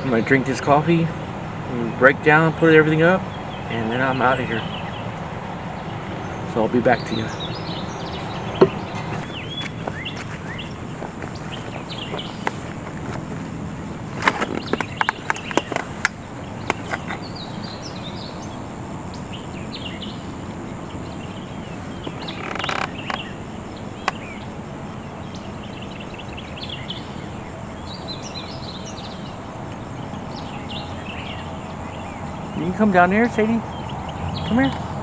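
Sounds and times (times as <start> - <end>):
songbirds chirping and singing: 0.0 - 35.0
low bird call: 1.6 - 13.4
sharp clicks and knocks: 14.2 - 17.2.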